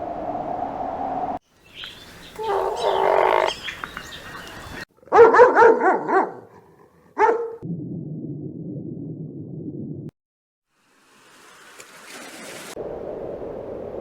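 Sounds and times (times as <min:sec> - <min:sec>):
dog barking: 0:05.1 - 0:07.6.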